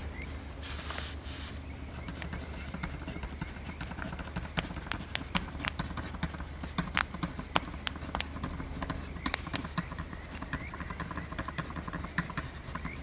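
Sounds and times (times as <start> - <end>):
wood fire crackling: 4.5 - 11.0.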